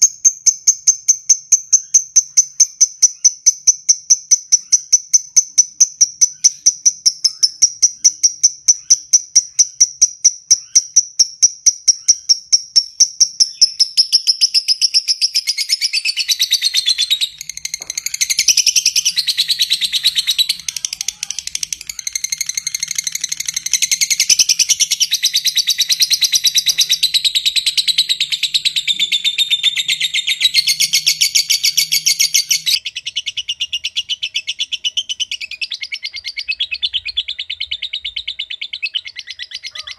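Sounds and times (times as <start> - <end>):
bird ticking calls: 0.0 - 39.9
bird shrill chatter: 13.5 - 32.8.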